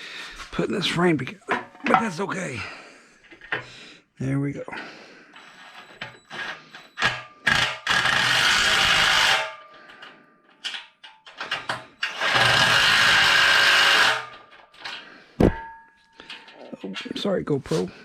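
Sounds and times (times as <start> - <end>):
handling knocks and clicks: 1.4 - 2.3
power driver running: 5.4 - 9.6, 11.4 - 14.4.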